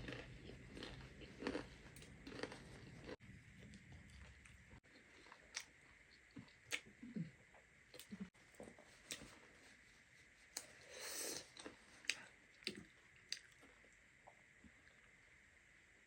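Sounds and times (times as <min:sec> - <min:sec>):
person chewing: 0:00.0 - 0:07.3, 0:10.6 - 0:13.8.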